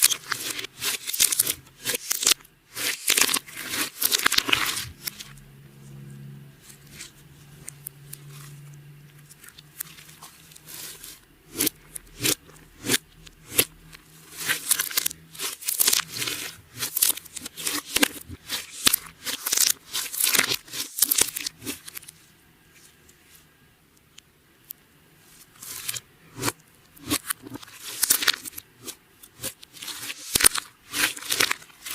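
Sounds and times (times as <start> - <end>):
slime crackling and popping: 0.0 - 5.3, 9.4 - 22.1, 25.6 - 31.9.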